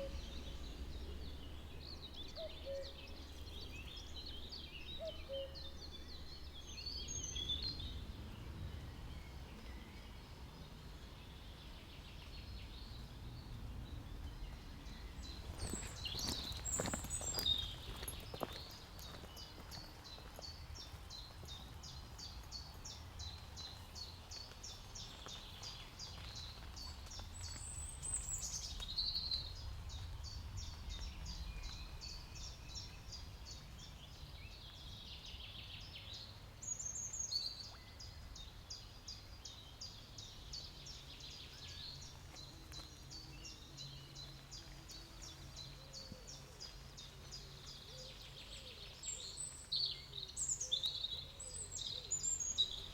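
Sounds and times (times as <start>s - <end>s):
low steady rumble: 0.0s - 18.0s
birds giving falling calls: 15.0s - 20.6s.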